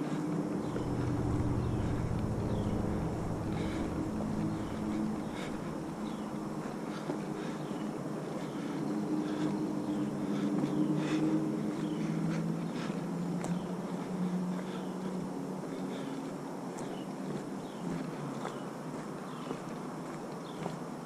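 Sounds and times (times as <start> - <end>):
steady low hum: 0.0 - 16.6
footsteps on a trail: 0.0 - 21.0.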